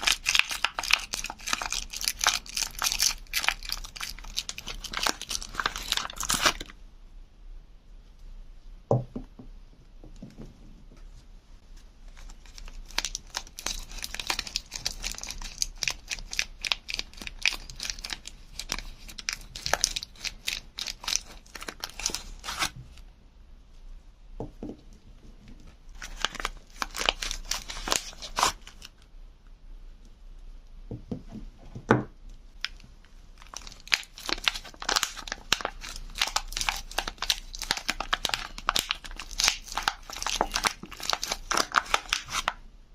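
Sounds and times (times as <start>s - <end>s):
wrapping crackling and tearing: 0.0s - 6.7s, 12.1s - 22.8s, 25.9s - 29.0s, 33.4s - 42.6s.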